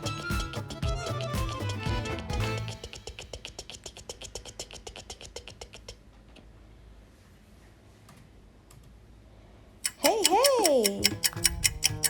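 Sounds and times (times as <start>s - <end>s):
music: 0.0s - 3.0s
rapid run of small clicks: 9.8s - 12.0s.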